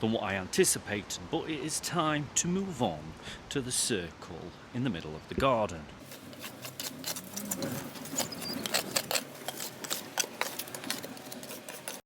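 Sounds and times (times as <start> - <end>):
clicks of grit and mortar: 6.0 - 12.0
hand tool scraping grout: 6.0 - 12.0.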